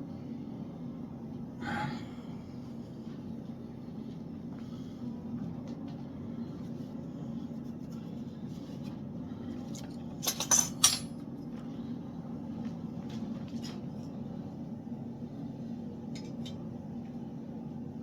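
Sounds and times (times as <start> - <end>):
steady low hum: 0.0 - 18.0
metal objects clinking: 10.2 - 11.1.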